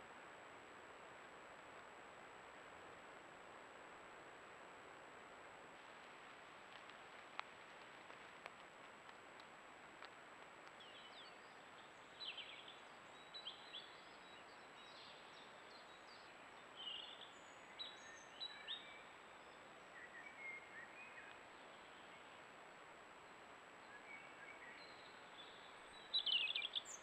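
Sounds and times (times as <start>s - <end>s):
microphone hiss: 0.0s - 27.0s
songbirds chirping and whistling: 10.8s - 22.4s, 23.8s - 27.0s.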